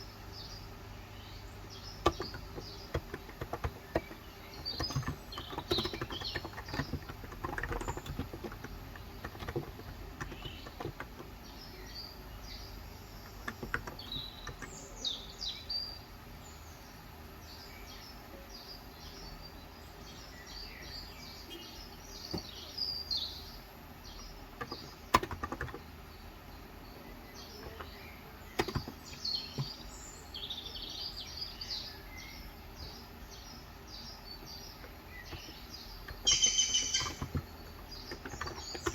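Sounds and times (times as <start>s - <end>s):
birds chirping: 0.0s - 38.9s
keyboard keystrokes: 2.0s - 11.3s, 13.2s - 14.7s, 24.6s - 25.8s, 28.6s - 29.8s, 35.3s - 38.9s.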